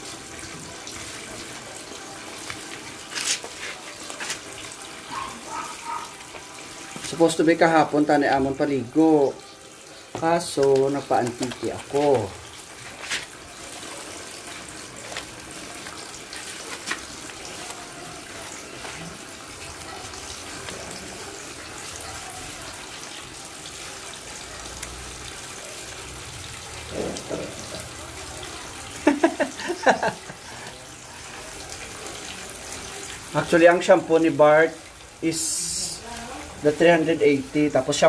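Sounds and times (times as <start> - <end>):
water running: 0.0 - 38.0
person speaking: 10.2 - 12.4.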